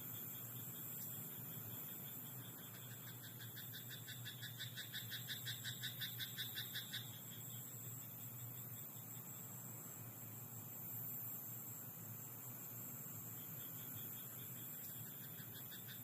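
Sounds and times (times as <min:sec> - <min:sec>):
high insect hum: 0:00.0 - 0:16.0
frog croaking: 0:02.0 - 0:07.5, 0:14.0 - 0:16.0.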